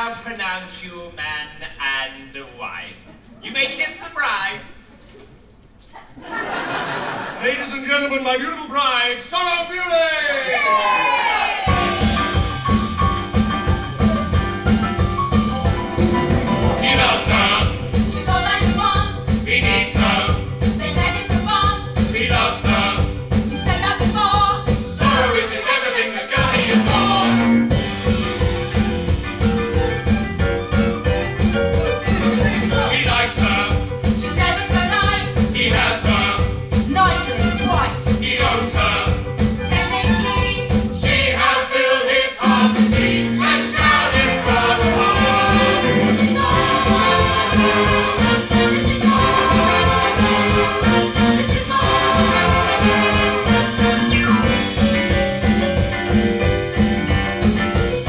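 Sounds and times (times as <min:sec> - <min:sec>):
band playing upbeat song: 0:10.8 - 0:58.0
voices singing: 0:16.7 - 0:27.7, 0:32.2 - 0:54.7.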